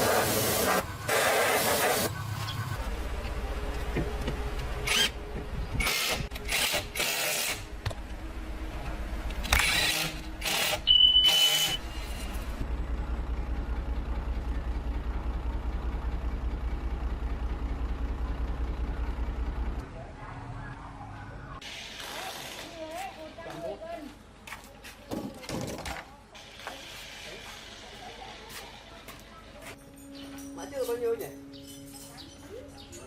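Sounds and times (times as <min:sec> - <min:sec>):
car engine idling: 0:07.7 - 0:09.5, 0:11.8 - 0:21.6
brief high tone: 0:10.9 - 0:12.0.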